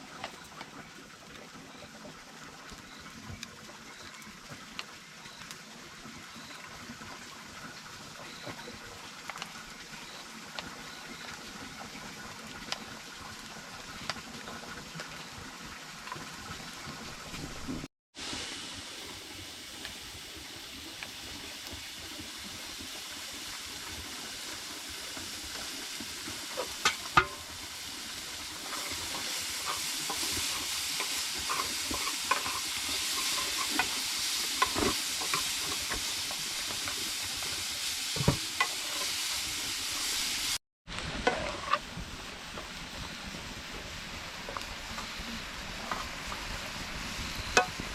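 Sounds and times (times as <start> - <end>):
food sizzling in a pan: 2.6 - 47.9
utensil clinking while stirring: 28.6 - 34.0.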